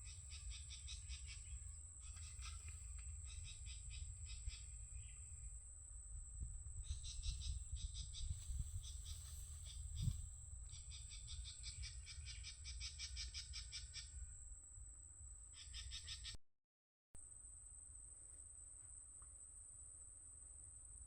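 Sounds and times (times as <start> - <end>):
rapid pulsed animal calls: 0.0 - 5.6, 6.8 - 14.4, 15.5 - 16.4.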